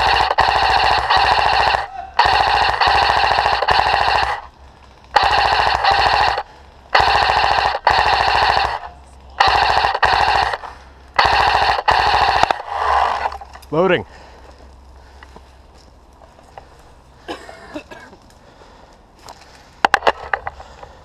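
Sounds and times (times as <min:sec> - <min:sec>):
airsoft rifle firing bursts: 0:00.0 - 0:04.5, 0:05.1 - 0:13.4.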